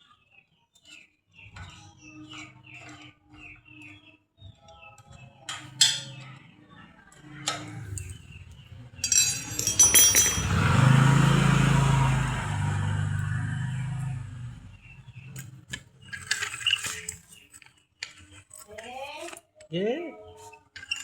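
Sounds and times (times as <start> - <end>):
metal parts knocking and clinking: 9.0 - 11.1.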